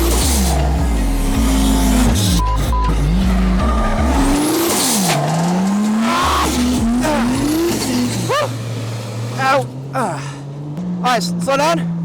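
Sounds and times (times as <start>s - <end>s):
tyres squealing: 0.0s - 10.3s
car engine revving: 0.0s - 12.0s.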